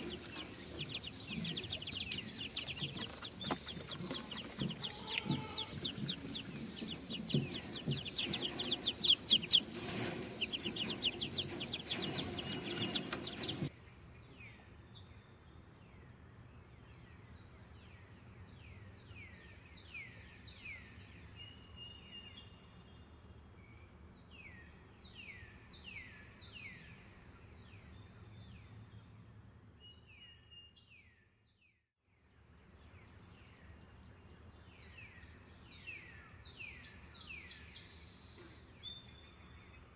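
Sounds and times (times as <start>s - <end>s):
chorus of birds chirping: 0.0s - 13.7s.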